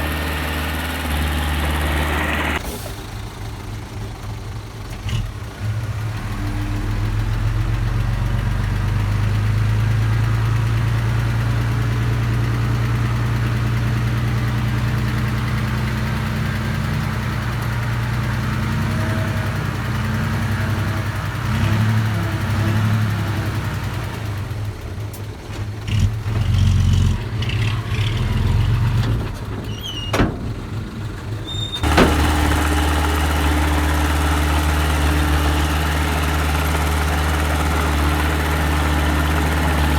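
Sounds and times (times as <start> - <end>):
earthmoving machine engine running: 0.0 - 2.6, 31.8 - 39.9.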